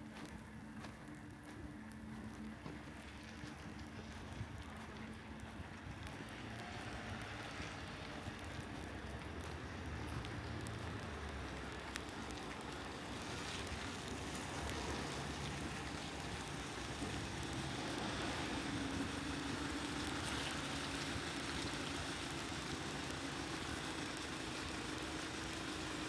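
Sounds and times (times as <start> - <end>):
vehicle engine hum: 2.4 - 26.0
light rain hissing: 10.9 - 26.0.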